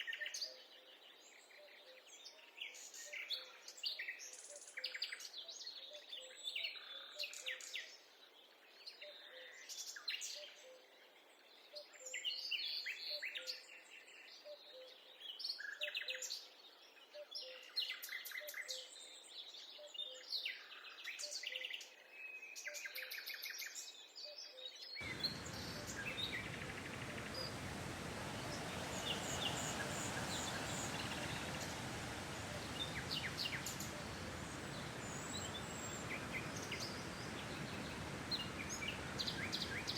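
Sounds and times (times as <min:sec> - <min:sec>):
forest birds chirping: 0:25.0 - 0:39.9
steady rushing noise: 0:25.0 - 0:39.9.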